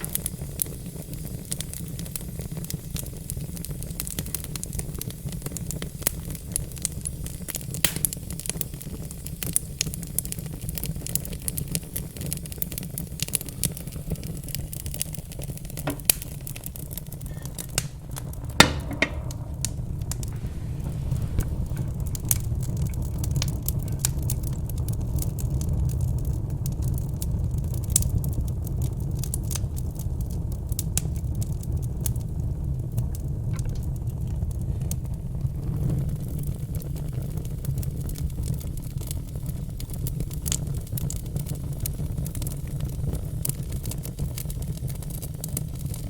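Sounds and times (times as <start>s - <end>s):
sharp fire pops: 0.0s - 29.8s
low fire rumble: 0.0s - 46.0s
wood fire crackling: 0.0s - 46.0s.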